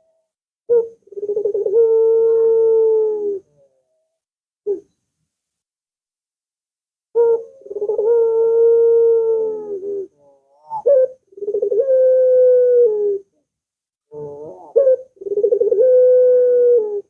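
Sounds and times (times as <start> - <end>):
dove cooing: 0.0 - 4.0, 7.2 - 13.4, 14.1 - 17.0.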